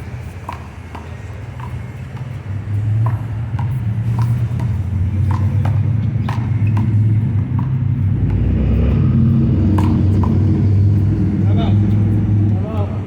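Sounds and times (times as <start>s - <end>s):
handball slapping hand and wall: 0.4s - 8.5s, 9.7s - 10.6s
low rumble: 7.3s - 12.7s.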